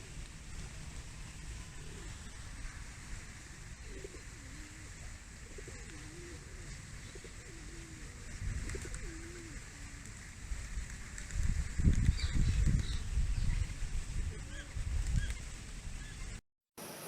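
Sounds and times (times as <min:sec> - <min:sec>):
dove cooing: 0:03.8 - 0:10.2.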